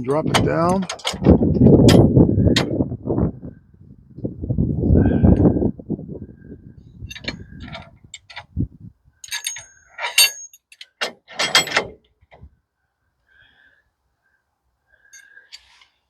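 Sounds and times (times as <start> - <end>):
metal clanking: 0.2 - 2.8, 7.1 - 8.5, 9.2 - 12.0.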